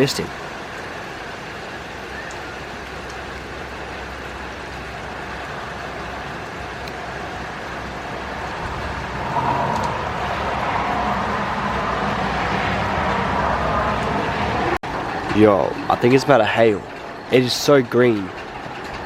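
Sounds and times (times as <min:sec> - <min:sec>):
car engine and road noise: 0:06.1 - 0:14.8.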